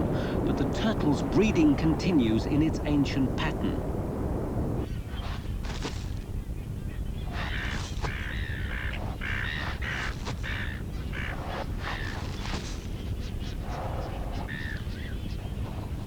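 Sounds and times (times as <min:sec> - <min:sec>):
steady low rumble: 0:00.0 - 0:08.5
birds calling: 0:00.0 - 0:16.0.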